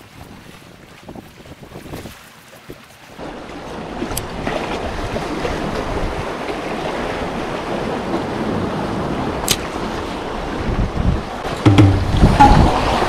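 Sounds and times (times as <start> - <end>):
waves rushing: 3.2 - 13.0
wind buffeting microphone: 7.0 - 13.0.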